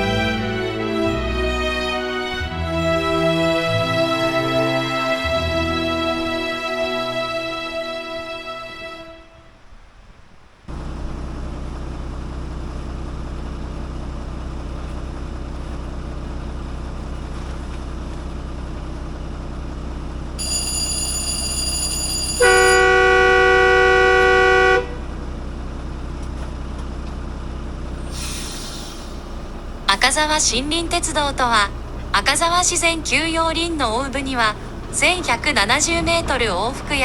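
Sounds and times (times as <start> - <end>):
diesel locomotive running: 0.0 - 9.2, 10.7 - 37.0
locomotive horn: 0.0 - 9.8, 22.2 - 25.2, 29.5 - 37.0.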